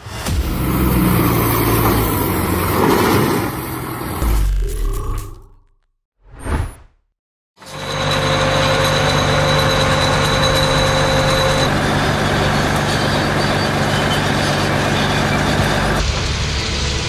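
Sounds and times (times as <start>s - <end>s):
diesel engine running: 0.2s - 4.6s, 7.6s - 17.0s
thin high whine: 7.7s - 13.1s.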